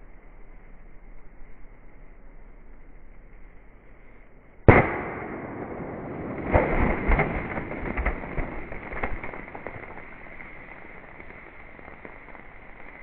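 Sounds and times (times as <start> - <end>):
pistol shot: 4.7 - 10.1.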